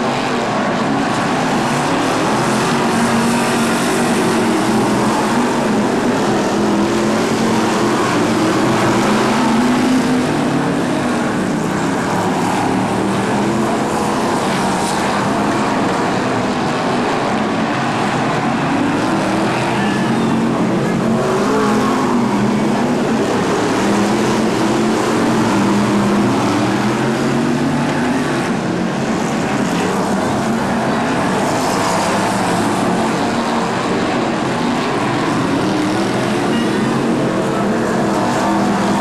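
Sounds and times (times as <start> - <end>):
race car engines revving: 0.0 - 39.0.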